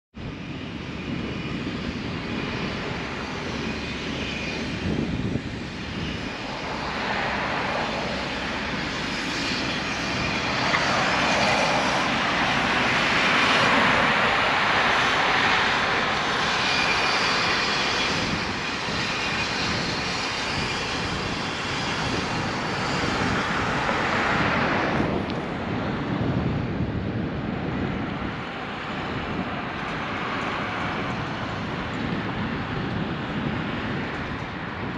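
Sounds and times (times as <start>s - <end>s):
wind and road rush: 0.1s - 34.9s.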